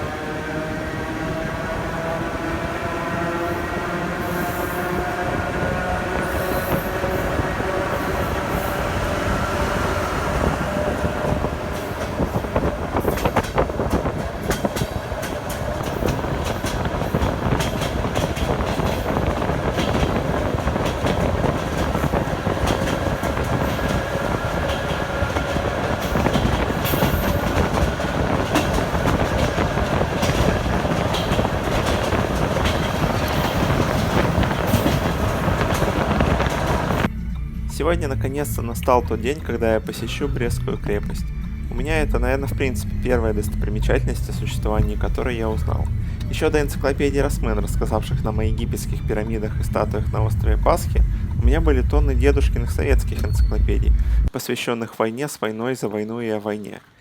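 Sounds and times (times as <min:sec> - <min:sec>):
electric train rumble: 0:00.0 - 0:54.3
wheels clacking over rail joints: 0:01.1 - 0:37.1.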